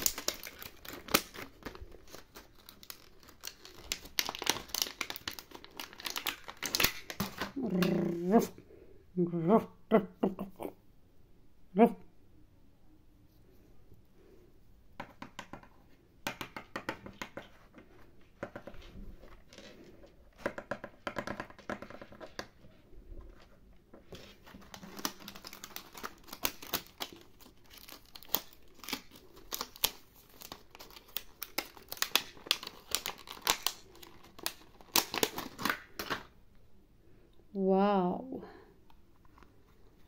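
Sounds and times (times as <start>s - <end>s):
plastic packaging crinkling: 0.0s - 8.2s, 24.1s - 36.4s.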